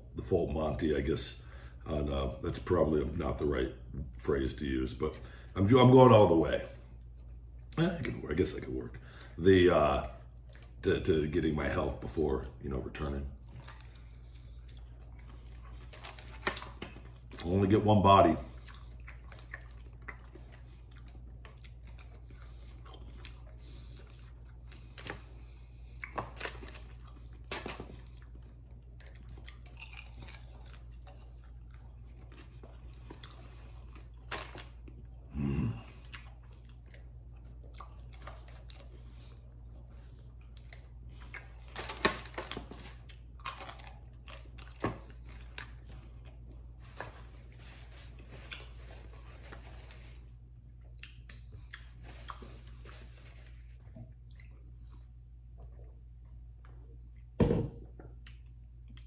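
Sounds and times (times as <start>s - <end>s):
man chewing and biting: 13.4s - 17.4s, 18.5s - 56.4s
low vocal sound: 35.3s - 36.0s.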